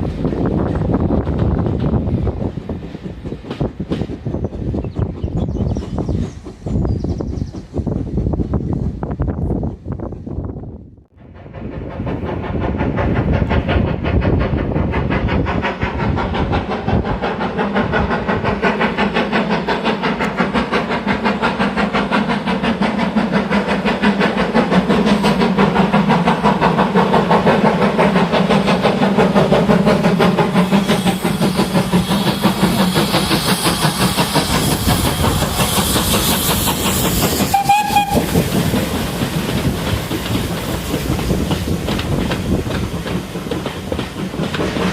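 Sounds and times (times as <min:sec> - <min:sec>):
steam locomotive chugging: 0:00.0 - 0:10.5, 0:11.2 - 0:44.9
rail noise: 0:00.0 - 0:44.9
train whistle toot: 0:37.4 - 0:38.4.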